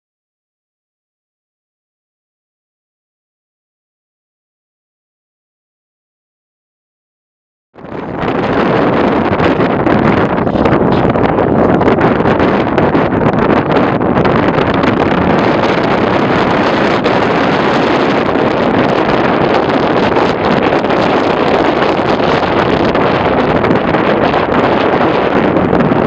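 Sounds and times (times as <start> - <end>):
wind buffeting microphone: 7.8 - 26.0.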